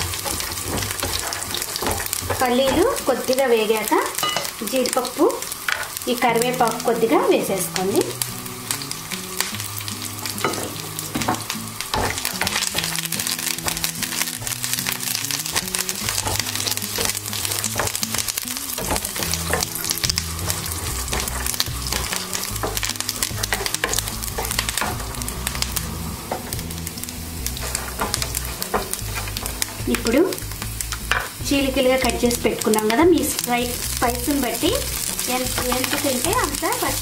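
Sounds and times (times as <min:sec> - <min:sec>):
spatula stirring in a pan: 0:00.0 - 0:03.4, 0:09.8 - 0:31.2
nuts sizzling and popping in oil: 0:00.0 - 0:37.0.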